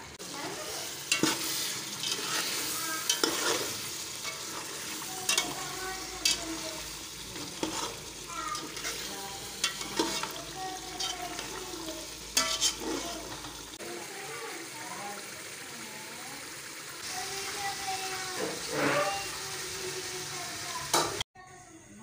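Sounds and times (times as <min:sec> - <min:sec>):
food sizzling in a metal pot: 0:00.0 - 0:22.0
spoon stirring: 0:01.1 - 0:06.6, 0:07.2 - 0:11.6, 0:12.3 - 0:13.6.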